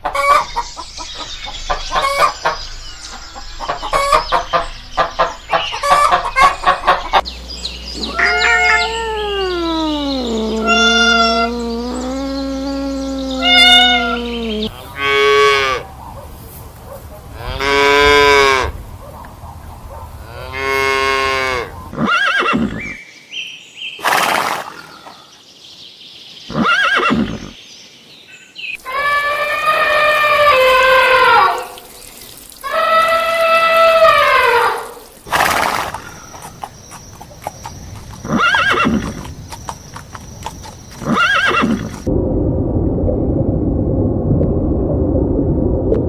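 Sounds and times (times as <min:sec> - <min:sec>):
animal calls: 0:07.9 - 0:23.0, 0:28.8 - 0:31.9, 0:32.6 - 0:42.1.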